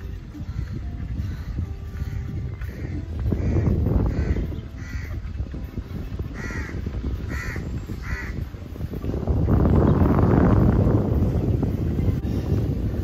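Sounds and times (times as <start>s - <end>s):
bird calling: 0.0s - 5.5s, 6.2s - 8.6s
steady low rumble: 0.0s - 13.0s.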